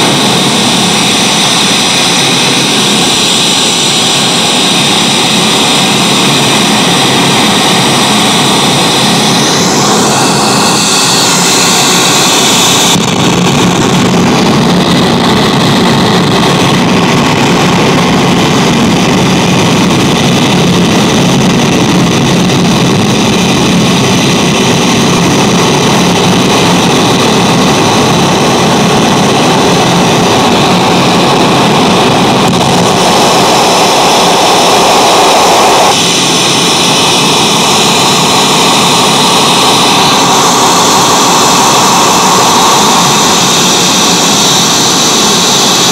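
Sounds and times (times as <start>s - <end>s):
loud electronic noise: 0.0s - 45.9s.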